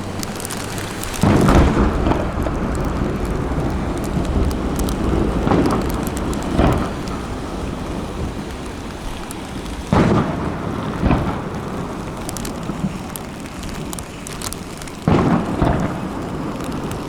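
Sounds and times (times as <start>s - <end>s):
fireworks booms: 0.0s - 14.4s, 15.0s - 17.0s
fireworks crackles: 0.0s - 17.0s
rolling rumble: 0.0s - 17.0s.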